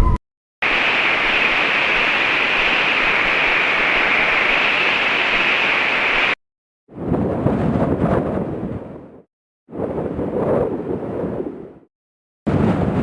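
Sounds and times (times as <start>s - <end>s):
wind hiss: 0.6s - 6.4s.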